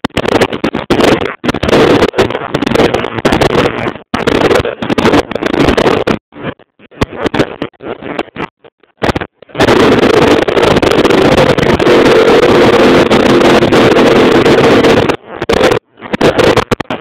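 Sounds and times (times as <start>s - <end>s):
dirt bike engine running loud: 9.6s - 16.8s.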